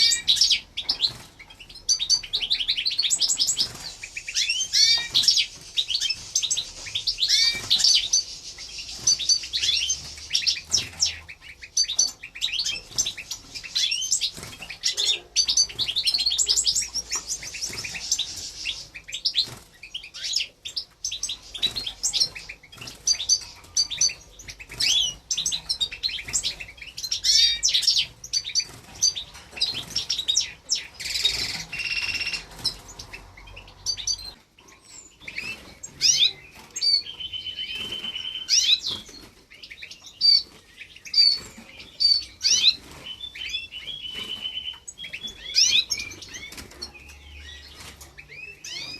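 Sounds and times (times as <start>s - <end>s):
chicks chirping: 0.0s - 48.9s.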